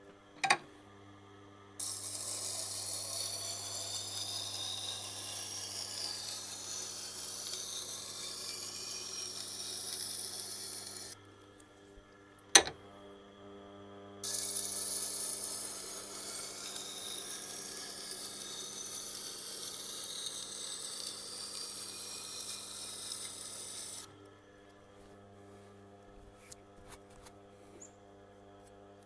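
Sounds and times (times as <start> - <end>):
knife grinding on wheel: 1.8 - 11.2, 14.2 - 24.1
sharpener motor hum: 1.8 - 11.2, 14.2 - 24.3.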